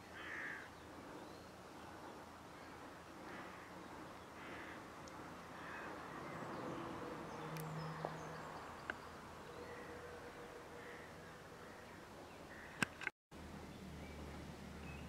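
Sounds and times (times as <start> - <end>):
distant birds calling: 0.0 - 15.0
small sharp clicks: 7.5 - 7.8, 12.8 - 13.1.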